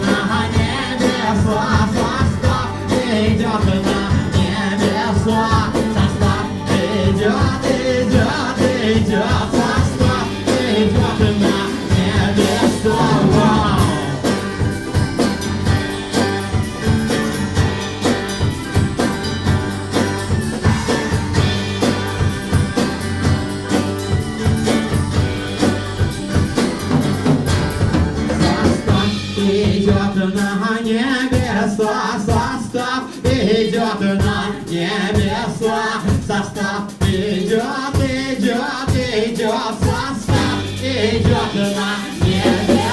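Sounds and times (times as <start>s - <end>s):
wavering melodic lead line: 0.0s - 29.4s
drum kit steady beat: 0.0s - 42.9s
live rock band playing: 0.0s - 42.9s.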